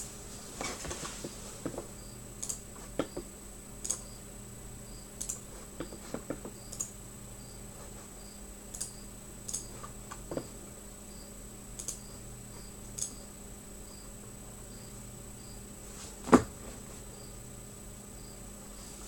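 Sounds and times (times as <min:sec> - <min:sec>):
steady high whine: 0:00.0 - 0:19.0
light clicks: 0:08.7 - 0:09.7, 0:11.8 - 0:12.0.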